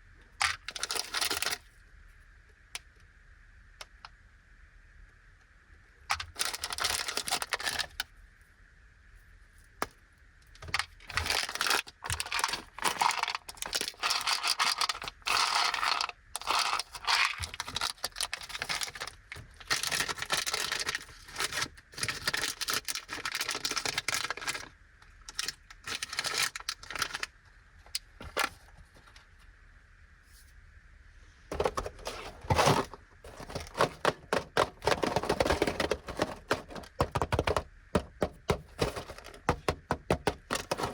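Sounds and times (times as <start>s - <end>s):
plastic packaging crinkling and tearing: 6.3s - 8.0s, 10.6s - 24.7s, 25.3s - 27.3s, 31.5s - 37.6s.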